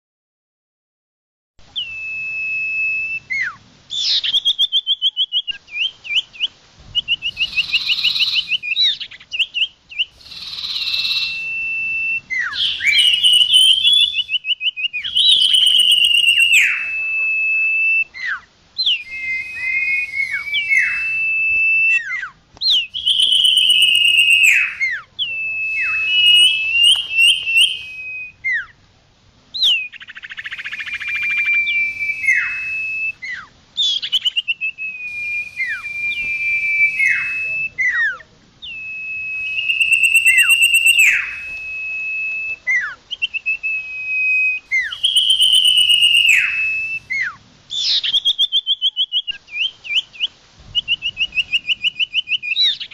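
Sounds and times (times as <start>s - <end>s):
bird singing whistled notes: 1.6s - 28.8s, 29.5s - 52.9s.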